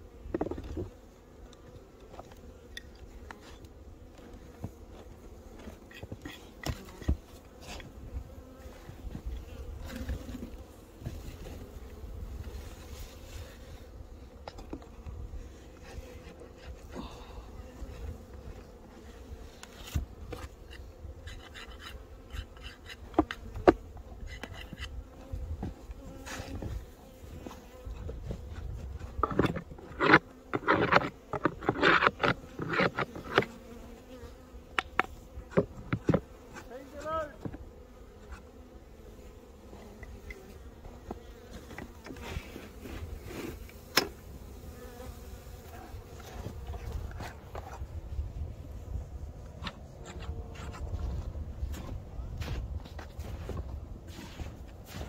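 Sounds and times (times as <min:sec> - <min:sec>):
bees buzzing: 0:00.0 - 0:48.1.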